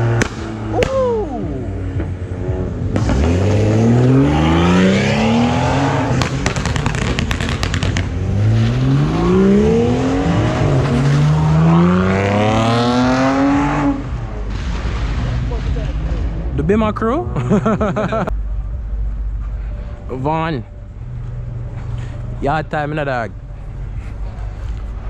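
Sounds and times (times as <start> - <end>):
sharp exhaust pops: 0.0 - 1.1, 6.1 - 8.8
car engine revving: 0.0 - 25.0.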